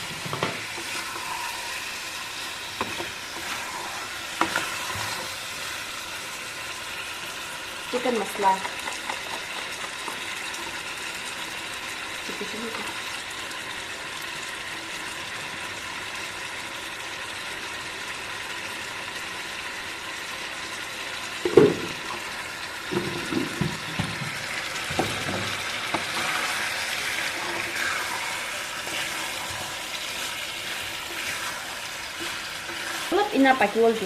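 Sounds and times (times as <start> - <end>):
curry sizzling in a pan: 0.0 - 34.0
spatula knocking against pan: 8.6 - 10.3.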